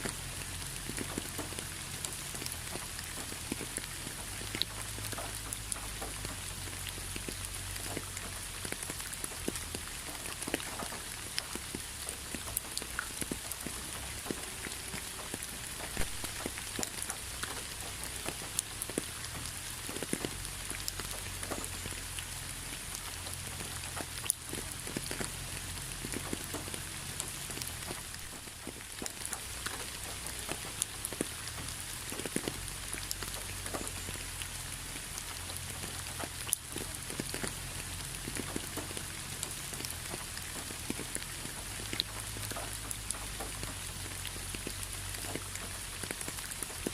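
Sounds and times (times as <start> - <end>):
raindrops ticking on a surface: 0.0 - 46.9
steady rain hiss: 0.0 - 46.9.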